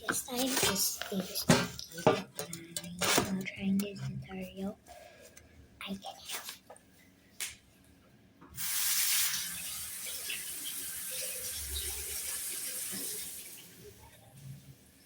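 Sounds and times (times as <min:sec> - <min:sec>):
tap water running into sink: 0:08.5 - 0:14.2.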